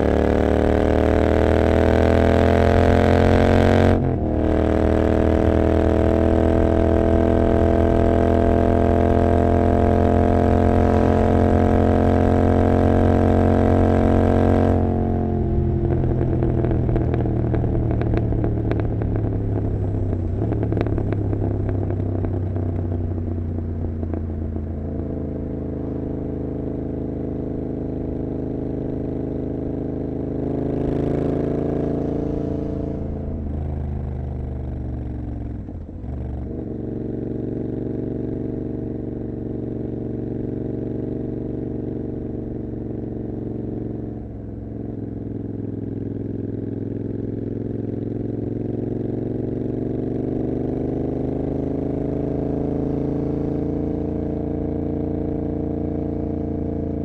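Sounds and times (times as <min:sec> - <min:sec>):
motorcycle engine: 0:00.0 - 0:57.0
exhaust crackling on overrun: 0:03.3 - 0:27.0.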